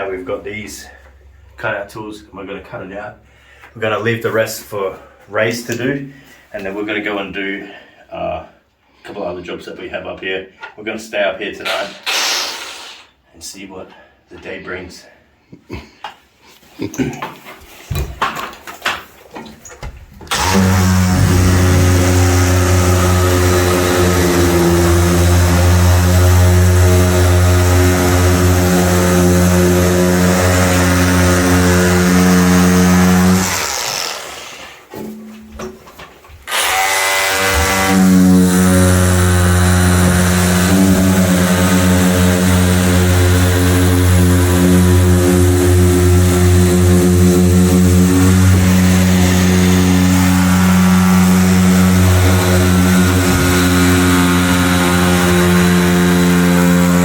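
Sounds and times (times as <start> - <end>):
power tool motor humming: 20.3 - 34.6, 36.5 - 57.0.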